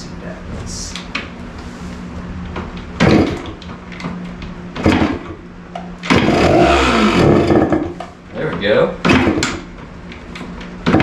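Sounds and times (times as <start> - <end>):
motorcycle engine starting: 6.0 - 8.0
kickstarter heavy clunks: 6.0 - 8.1.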